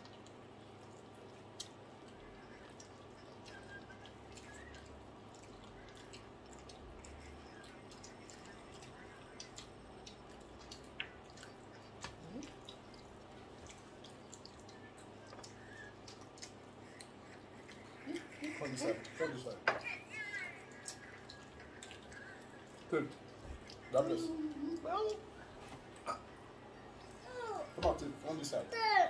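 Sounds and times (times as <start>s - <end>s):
wet mouth clicks and smacks: 0.0s - 18.4s
people chewing: 0.0s - 28.6s.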